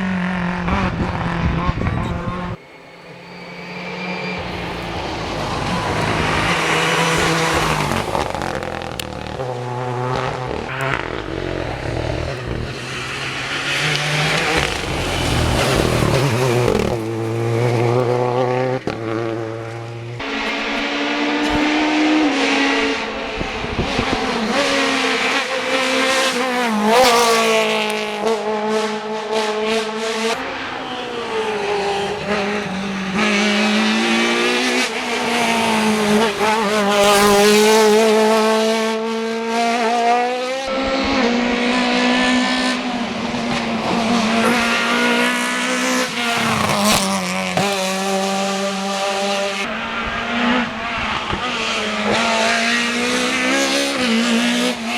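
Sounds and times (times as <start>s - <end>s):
rally car engines revving: 0.0s - 54.9s
tyres squealing: 0.8s - 9.5s, 10.5s - 18.2s, 20.2s - 28.0s, 30.3s - 38.6s.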